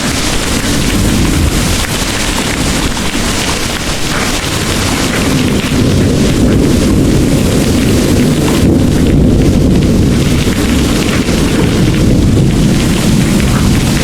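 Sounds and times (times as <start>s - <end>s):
distant thunder rumbling: 0.0s - 14.0s
heavy rain pouring: 0.0s - 14.0s.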